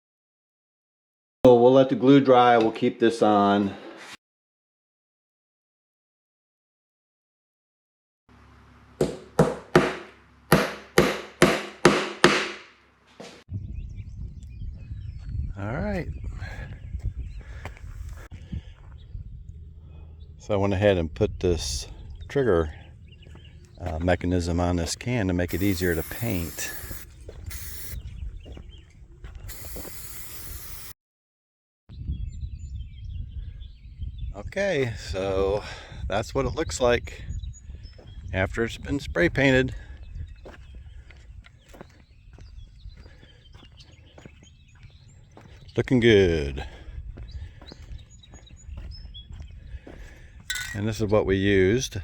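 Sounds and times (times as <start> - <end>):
birds chirping: 13.5 - 30.9, 31.9 - 36.0, 36.6 - 51.9
spray paint can hissing: 25.4 - 28.0, 29.4 - 31.0
sharp ringing knocks: 50.5 - 50.9.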